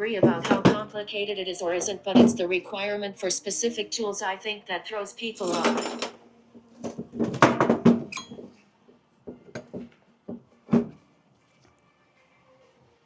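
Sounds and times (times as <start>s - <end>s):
metal clips rattling: 5.4s - 6.2s.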